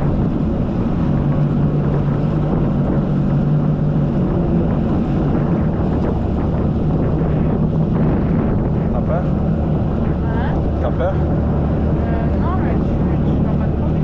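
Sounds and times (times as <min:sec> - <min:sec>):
jet ski engine droning: 0:00.0 - 0:14.0
wind buffeting microphone: 0:00.0 - 0:14.0.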